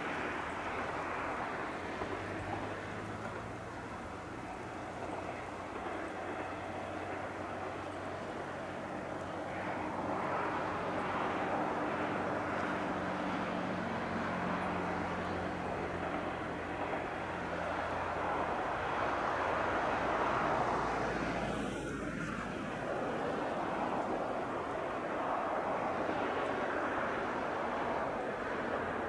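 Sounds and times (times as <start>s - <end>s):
diesel railcar passing: 0.0s - 29.0s.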